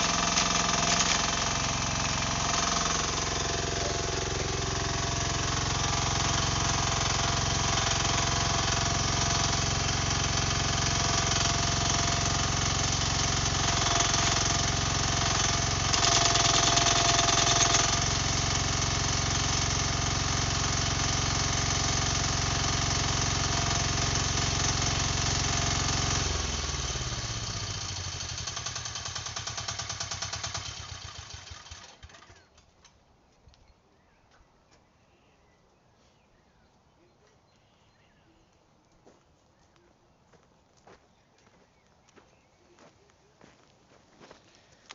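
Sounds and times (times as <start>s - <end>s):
excavator engine running: 0.0s - 32.6s.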